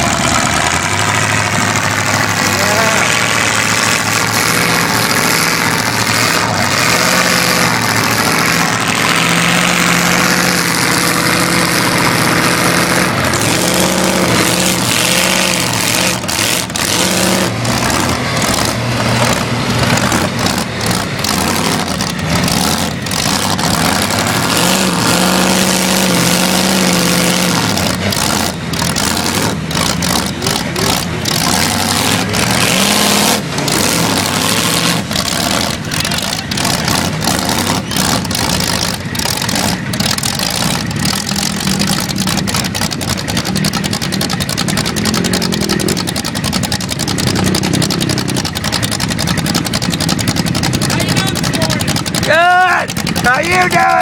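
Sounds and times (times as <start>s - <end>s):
vehicle engine revving: 0.0s - 54.0s
sharp clicks and knocks: 13.0s - 54.0s.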